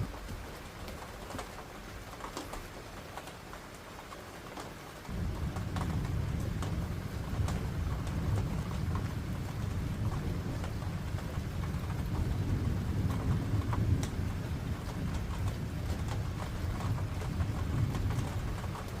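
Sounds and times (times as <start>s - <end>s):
rain falling: 0.0s - 19.0s
raindrop clicks: 0.0s - 19.0s
distant thunder rumbling: 5.1s - 19.0s.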